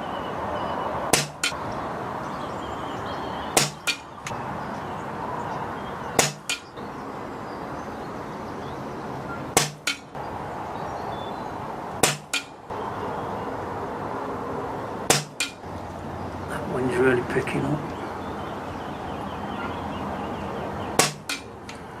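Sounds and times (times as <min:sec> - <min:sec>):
steady wind noise: 0:00.0 - 0:22.0
air rifle shots: 0:01.1 - 0:01.6, 0:03.6 - 0:04.1, 0:06.2 - 0:06.7, 0:09.6 - 0:10.0, 0:12.0 - 0:12.5, 0:21.0 - 0:21.4.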